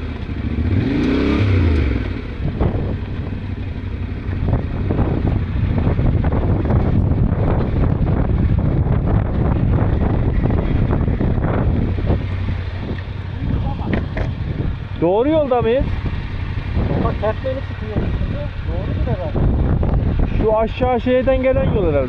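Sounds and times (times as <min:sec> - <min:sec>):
motorcycle engine running: 0:00.0 - 0:22.0
wind buffeting microphone: 0:00.7 - 0:22.0
knocks and rattles: 0:12.9 - 0:14.6.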